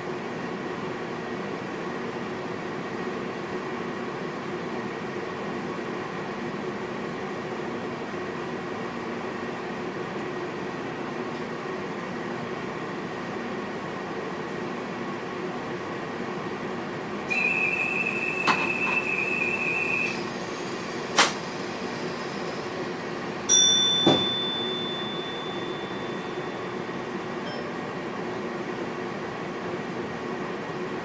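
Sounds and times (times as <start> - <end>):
electric train running hum: 0.0 - 31.0
bell-like cab signal: 23.5 - 28.1
high electronic beep: 27.4 - 27.8.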